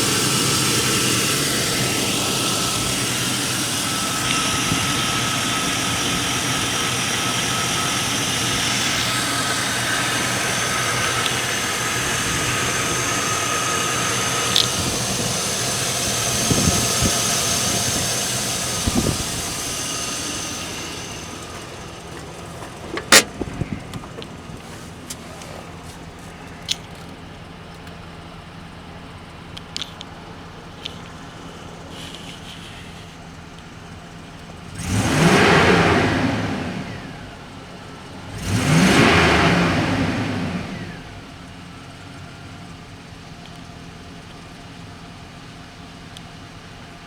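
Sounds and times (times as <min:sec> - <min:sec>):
car engine idling: 0:00.0 - 0:47.0
sharp clicks: 0:14.4 - 0:15.0.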